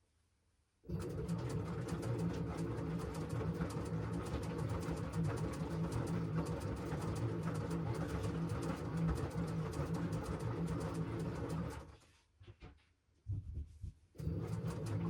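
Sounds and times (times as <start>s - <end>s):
washing machine motor hum: 0.9s - 12.0s, 14.2s - 15.0s.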